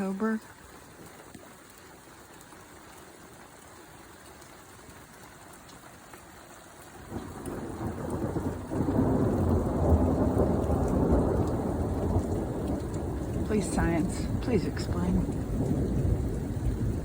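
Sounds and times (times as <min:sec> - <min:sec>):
rain hissing: 0:00.0 - 0:17.0
thunder rumbling: 0:07.1 - 0:17.0.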